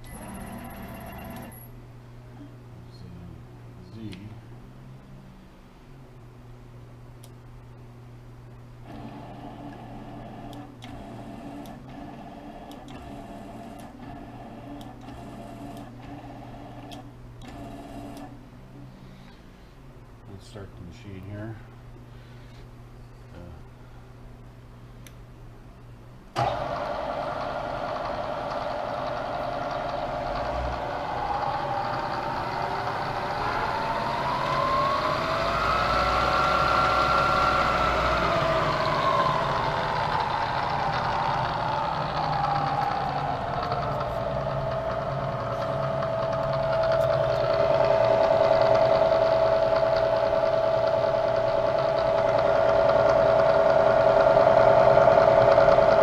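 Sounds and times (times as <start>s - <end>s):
milling machine spindle whine: 26.4s - 56.0s.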